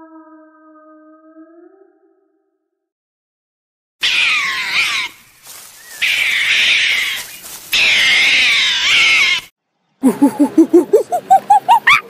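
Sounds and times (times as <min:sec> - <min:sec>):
mongoose high-pitched calls: 0:04.0 - 0:05.2, 0:05.8 - 0:09.5, 0:10.1 - 0:12.0.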